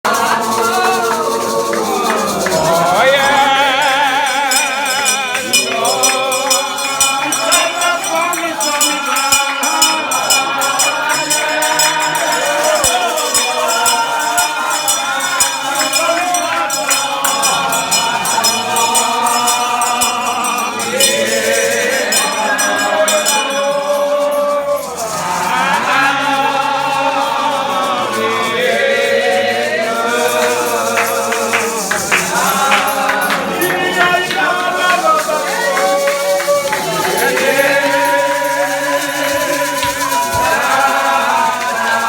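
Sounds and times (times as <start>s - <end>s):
voices singing together: 0.0s - 42.0s
shaken percussion: 0.1s - 42.0s.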